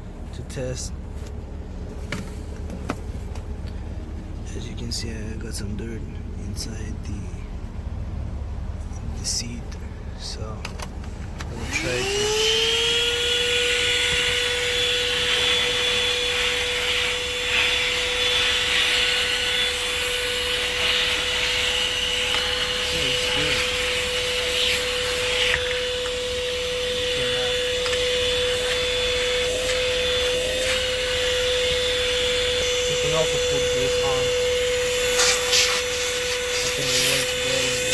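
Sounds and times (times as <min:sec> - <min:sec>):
vacuum cleaner motor whine: 0:10.0 - 0:37.9.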